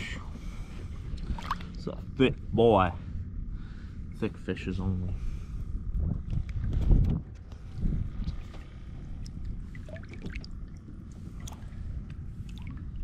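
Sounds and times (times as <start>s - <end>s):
wind rumble on microphone: 0.0s - 13.0s
water sloshing and dripping: 1.1s - 2.0s, 8.2s - 13.0s.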